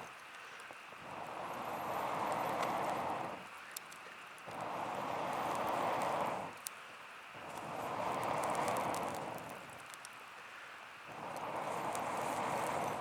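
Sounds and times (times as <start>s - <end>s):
embers crackling: 7.4s - 10.1s, 11.1s - 13.0s.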